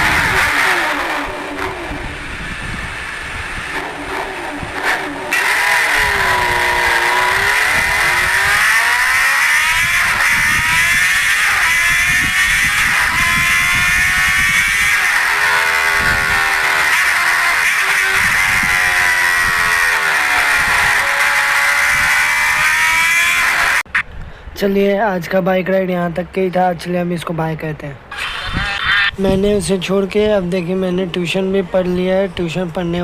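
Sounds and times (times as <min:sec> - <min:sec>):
wind buffeting microphone: 0:00.0 - 0:05.2, 0:05.9 - 0:16.6, 0:17.3 - 0:23.1, 0:28.4 - 0:30.6
motorcycle engine accelerating: 0:00.0 - 0:24.0.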